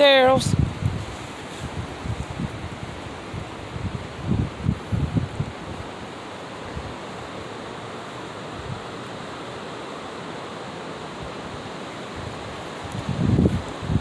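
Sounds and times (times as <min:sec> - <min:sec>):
wind on microphone: 0:00.0 - 0:07.5, 0:08.5 - 0:09.0, 0:11.1 - 0:14.0.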